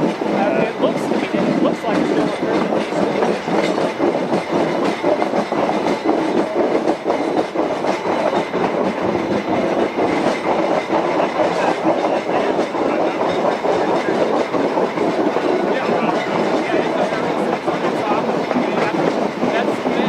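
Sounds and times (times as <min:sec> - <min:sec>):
train cars rumbling: 0:00.0 - 0:20.0.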